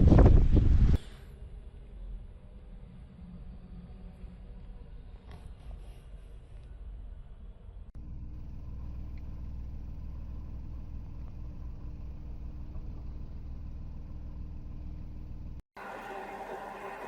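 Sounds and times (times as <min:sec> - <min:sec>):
car engine humming: 0:08.0 - 0:15.6.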